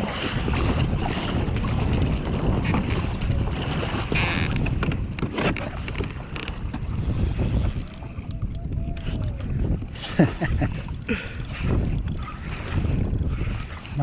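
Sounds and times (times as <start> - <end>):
water slapping against hull: 0.0 - 14.0
wind buffeting microphone: 0.0 - 14.0.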